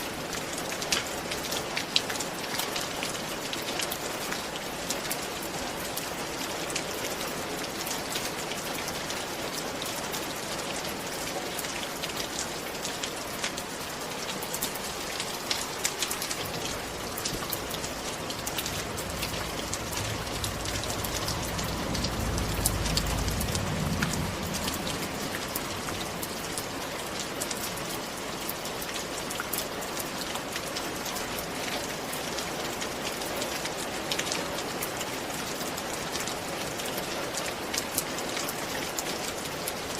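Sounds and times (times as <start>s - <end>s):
rain pattering: 0.0s - 39.9s
low rumble: 16.6s - 27.2s.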